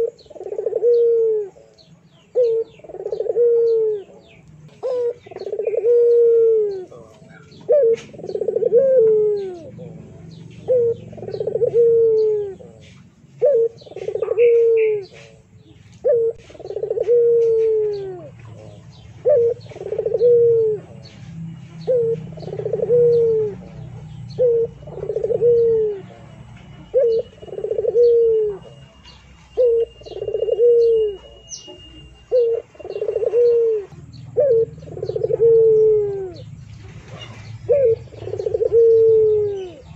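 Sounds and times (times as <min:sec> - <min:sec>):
bird cooing: 0:00.0 - 0:39.9
faint high chirps: 0:17.7 - 0:36.5.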